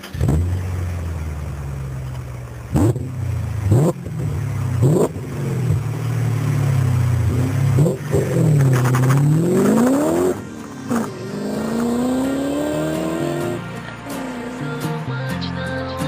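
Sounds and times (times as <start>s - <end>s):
engine cranking: 0.0s - 0.6s, 7.3s - 13.4s
diesel engine idling: 0.0s - 14.8s
engine throttle blips: 0.0s - 14.8s.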